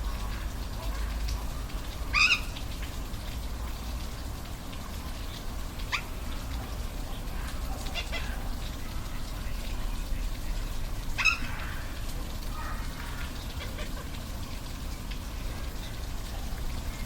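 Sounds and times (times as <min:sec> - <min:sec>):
animal calls: 0:07.4 - 0:08.6.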